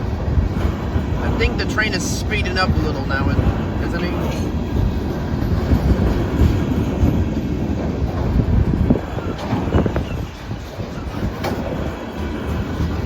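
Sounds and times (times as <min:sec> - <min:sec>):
train wheels rumbling on rail: 0:00.0 - 0:13.0
freight car clanks: 0:03.1 - 0:13.0.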